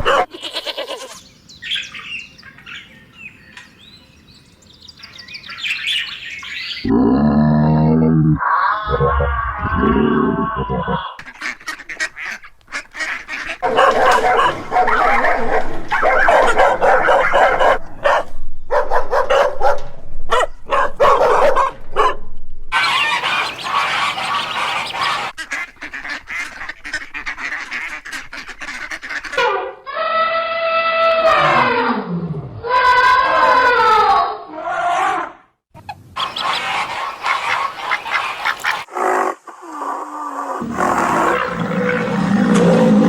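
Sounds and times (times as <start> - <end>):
birds honking: 0.0 - 6.9, 10.6 - 17.8, 22.7 - 29.4, 36.2 - 38.9, 40.6 - 43.0.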